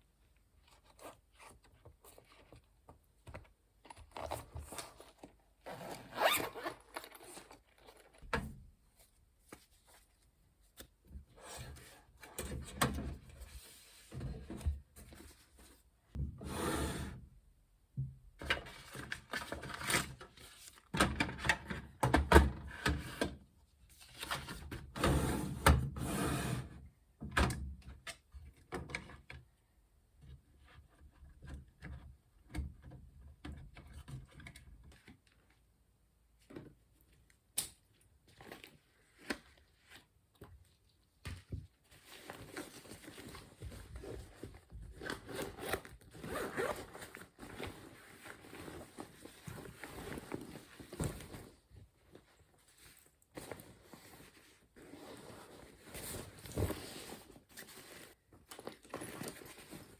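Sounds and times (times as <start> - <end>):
rustling and shuffling: 6.2 - 11.0, 38.2 - 59.9.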